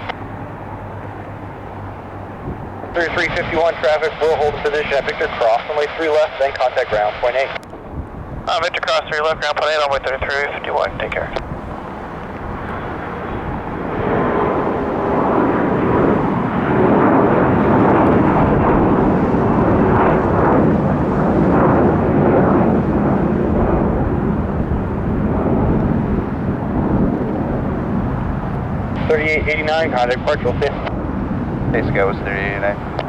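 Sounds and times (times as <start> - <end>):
jet engines roaring at takeoff: 0.0 - 33.0.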